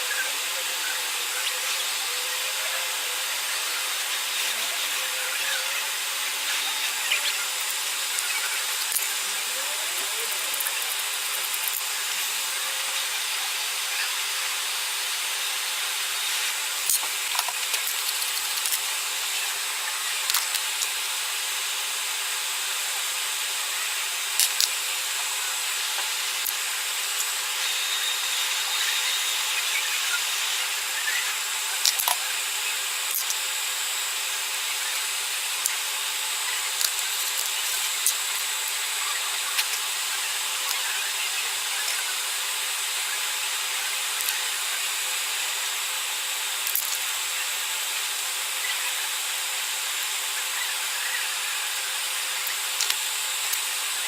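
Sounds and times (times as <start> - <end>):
hot air station hissing: 0.0 - 54.0
tools clicking on circuit board: 16.9 - 18.8, 24.4 - 24.7, 31.8 - 32.2.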